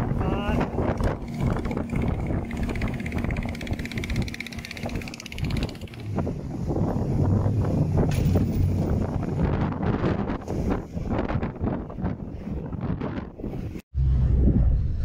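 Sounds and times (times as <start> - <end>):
wind buffeting microphone: 0.0 - 15.0
engine running: 0.7 - 10.0.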